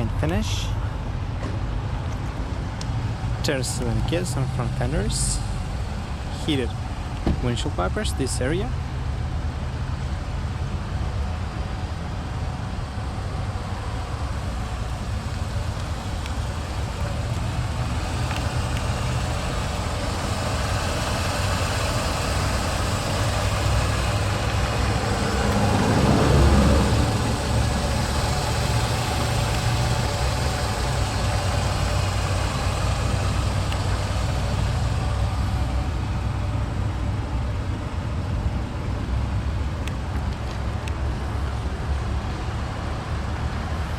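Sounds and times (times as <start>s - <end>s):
car engine idling: 0.0s - 43.9s
vehicle passing by: 12.6s - 38.2s.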